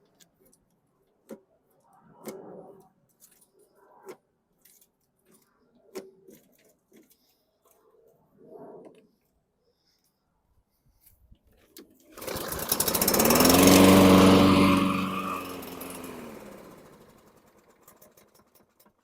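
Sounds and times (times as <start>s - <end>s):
mower engine starting and stalling: 12.0s - 19.0s.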